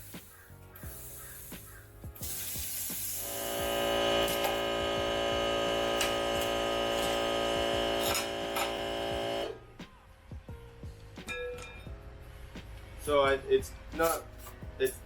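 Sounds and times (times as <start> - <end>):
plasma cutter buzzing: 2.2 - 9.6.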